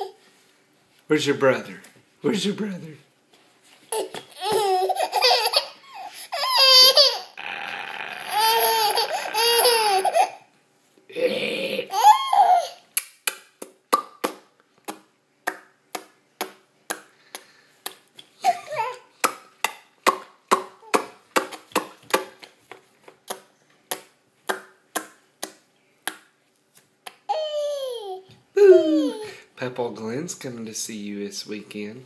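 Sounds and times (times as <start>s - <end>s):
baby squeaky vocal sounds: 3.9s - 7.4s, 8.3s - 10.4s, 11.9s - 12.8s, 18.4s - 19.2s, 27.2s - 29.3s
baby squealing: 4.0s - 10.4s, 11.8s - 12.8s, 18.4s - 19.0s, 27.3s - 29.3s
baby making clicking croaking sounds: 19.2s - 22.2s.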